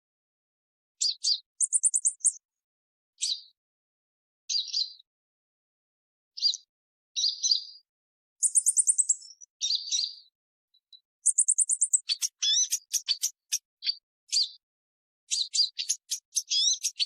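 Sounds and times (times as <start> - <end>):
bird chips: 1.0 - 2.4, 8.4 - 10.0, 11.2 - 14.6, 15.3 - 17.0
very high bird trill: 1.0 - 2.4, 8.4 - 10.2, 11.2 - 14.6, 15.3 - 17.0.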